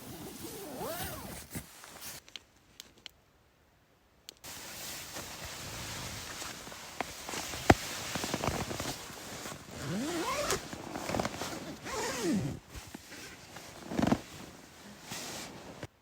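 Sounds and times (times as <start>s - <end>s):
zipping noise: 0.0s - 2.2s, 9.7s - 12.6s
scratchy rustling: 4.5s - 15.9s.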